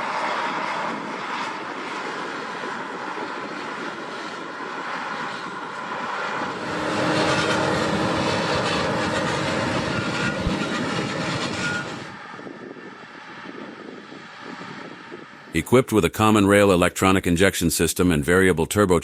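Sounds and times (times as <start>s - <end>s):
tractor diesel engine droning: 6.4s - 12.6s.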